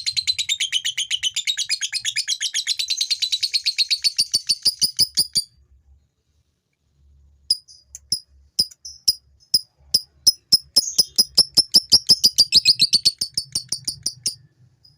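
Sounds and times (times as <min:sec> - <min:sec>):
lovebird chattering: 0:07.5 - 0:14.4.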